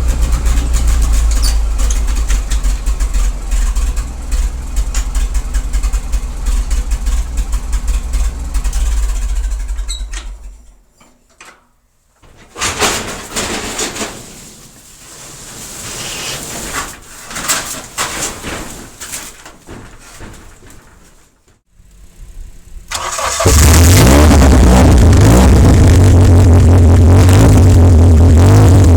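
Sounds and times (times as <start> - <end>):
tractor engine running: 0.0 - 10.8, 21.7 - 28.9
knocks and clatter: 0.0 - 21.7.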